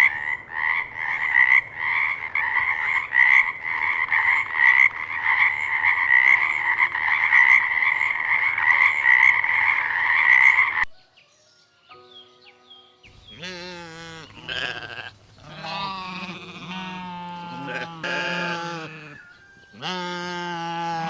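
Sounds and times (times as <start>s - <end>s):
frogs calling: 0.0s - 10.9s.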